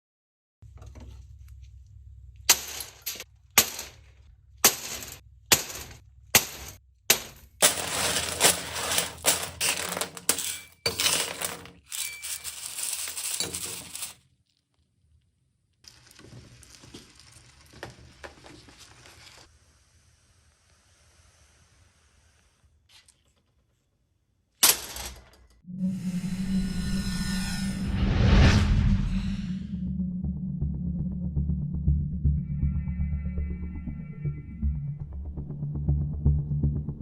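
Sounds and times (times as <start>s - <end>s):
hard candy clinking and rattling: 7.6s - 14.3s.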